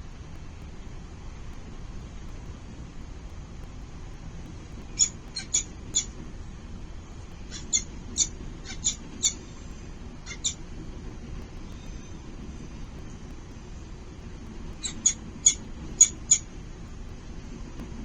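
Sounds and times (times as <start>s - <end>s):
low background rumble: 0.0s - 18.0s
falcons squeaking: 7.5s - 9.4s, 10.3s - 10.6s, 14.8s - 16.4s.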